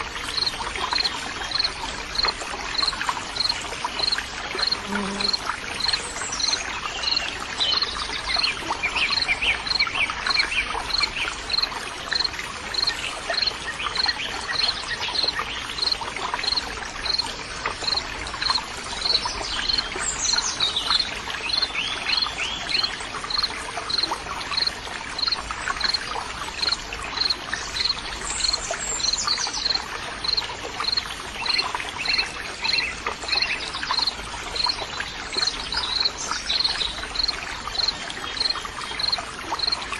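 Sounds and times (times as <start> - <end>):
water trickling: 0.0 - 39.9
insect chirping: 0.3 - 8.4, 9.1 - 17.2, 35.9 - 39.8.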